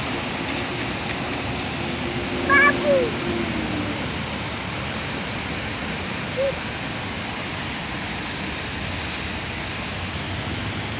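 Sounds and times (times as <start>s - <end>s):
steady rain falling: 0.0s - 10.9s.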